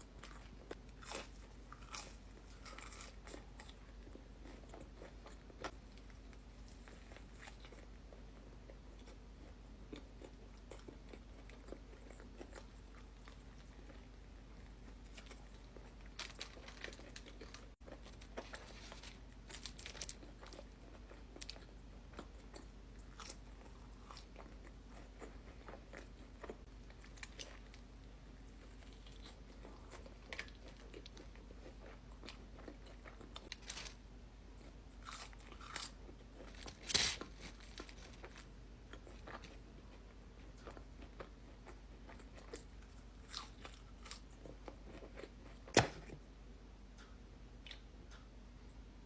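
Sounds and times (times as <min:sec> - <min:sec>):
person chewing crunchy food: 0:00.0 - 0:46.2.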